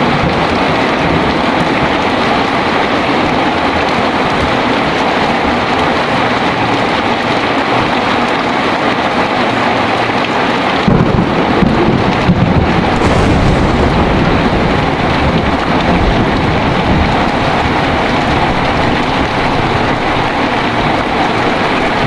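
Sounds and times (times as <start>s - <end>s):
heavy rain pouring: 0.0s - 22.0s
thunder rumbling: 10.9s - 22.0s.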